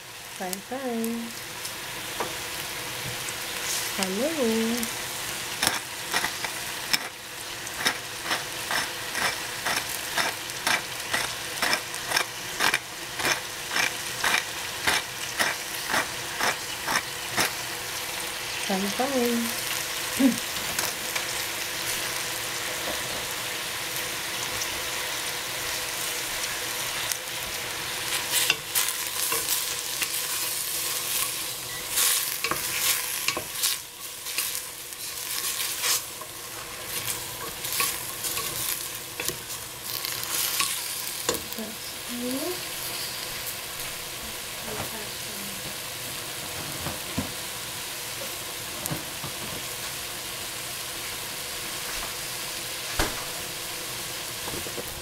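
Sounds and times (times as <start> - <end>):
chard sizzling in oil: 0.0 - 55.0.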